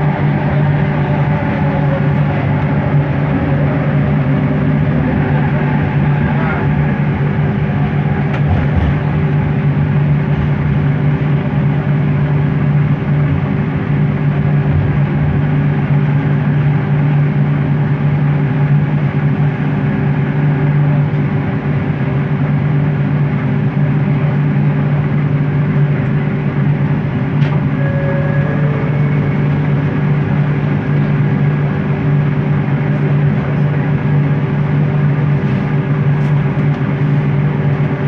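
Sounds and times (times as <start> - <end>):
deep motor hum: 0.0 - 38.0
train rolling noise: 0.0 - 38.0
faint high motor tone: 27.4 - 31.4.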